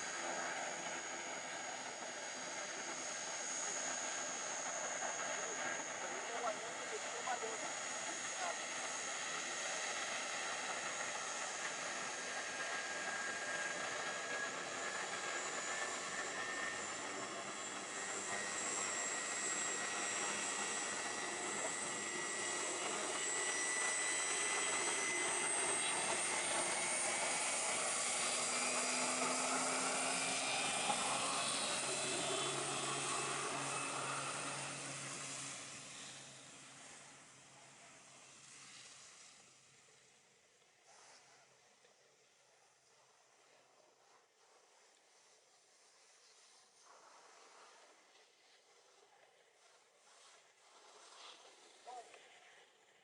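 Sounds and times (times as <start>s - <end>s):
propeller noise: 0.0s - 38.7s
turboprop engine whine: 0.0s - 40.2s.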